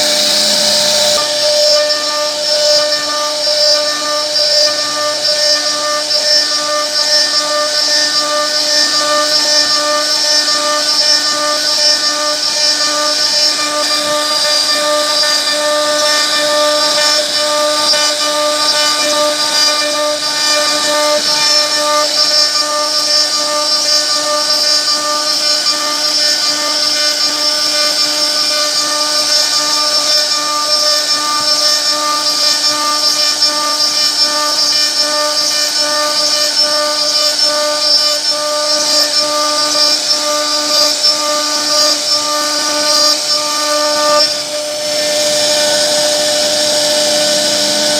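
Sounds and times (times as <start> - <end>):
hiss of cutting wood: 0.0 - 1.4, 31.5 - 47.9
router spindle whine: 0.0 - 47.9.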